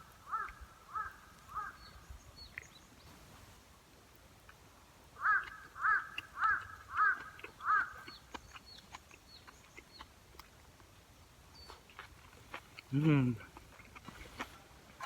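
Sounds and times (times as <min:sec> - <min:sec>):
crow cawing: 0:00.3 - 0:01.8, 0:05.2 - 0:08.0.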